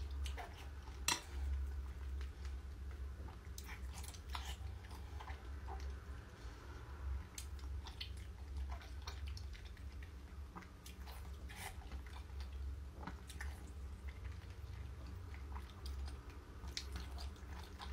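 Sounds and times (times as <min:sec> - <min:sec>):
steady low hum: 0:00.0 - 0:17.9
woman chewing with wet smacks: 0:00.0 - 0:17.9.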